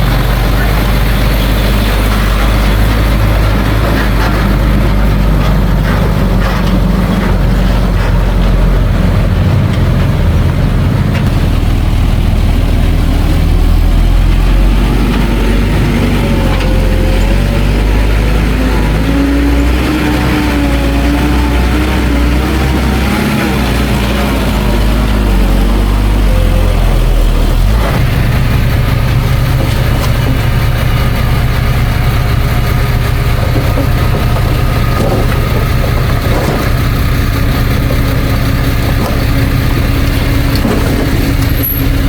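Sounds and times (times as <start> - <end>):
engine whine: 0.0 - 42.0
heavy diesel engines running: 0.0 - 42.0.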